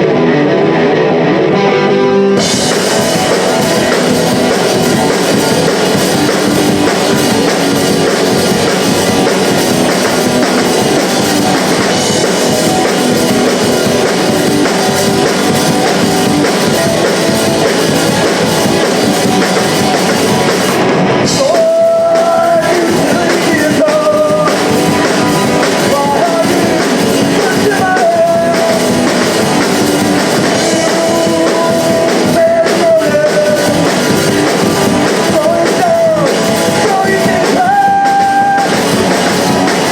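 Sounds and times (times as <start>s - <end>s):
punk rock band playing live: 0.0s - 39.9s
person singing: 21.2s - 39.9s.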